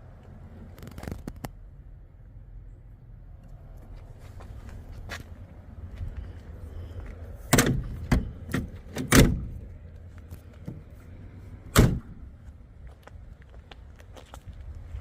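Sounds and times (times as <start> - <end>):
car door clunks and knocks: 7.5 - 9.6, 11.7 - 12.2
car door slamming: 7.5 - 9.6, 11.7 - 12.2.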